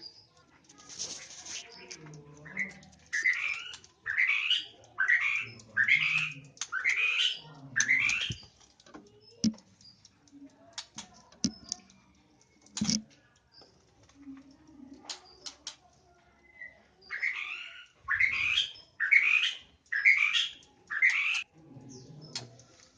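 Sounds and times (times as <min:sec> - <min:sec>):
bird sharp ticks: 0:01.6 - 0:13.6
birds harsh rising calls: 0:02.5 - 0:08.5, 0:16.4 - 0:22.4.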